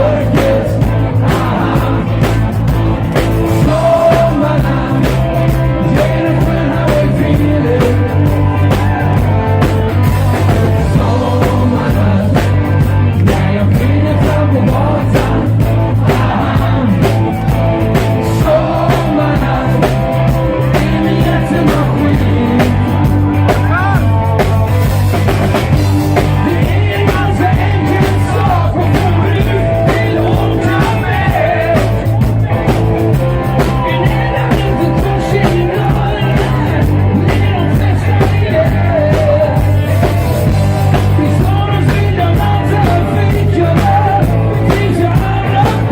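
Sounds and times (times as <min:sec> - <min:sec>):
bass line: 0:00.0 - 0:45.9
drums: 0:00.0 - 0:45.9.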